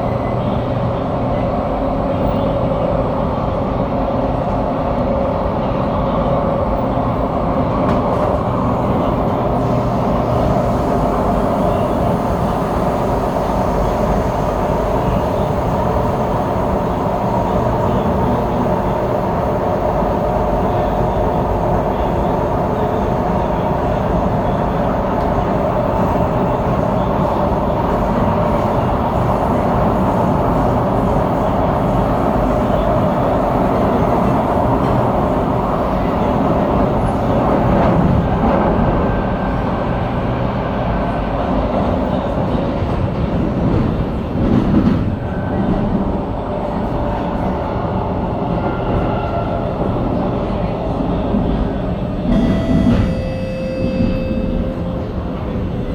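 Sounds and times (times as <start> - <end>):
train rumbling on track: 0.0 - 55.9
faint high whine: 52.3 - 55.2.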